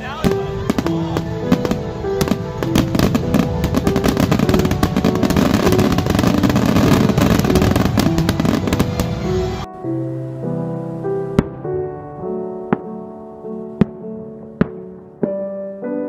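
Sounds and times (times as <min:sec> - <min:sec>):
fireworks bangs and crackle: 0:00.0 - 0:09.7
music with held notes: 0:00.0 - 0:16.0.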